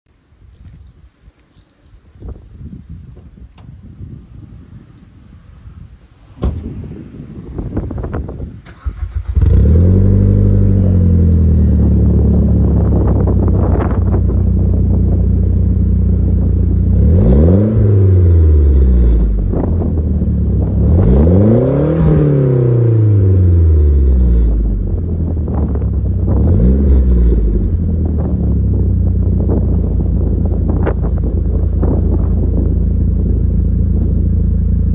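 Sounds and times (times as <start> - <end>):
car engine starting and idling: 8.6 - 34.9
engine throttle blips: 8.6 - 34.9.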